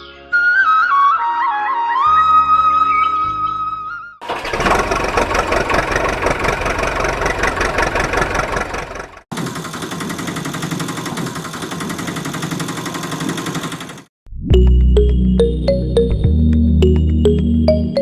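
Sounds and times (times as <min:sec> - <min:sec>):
engine chugging: 0:04.2 - 0:14.1.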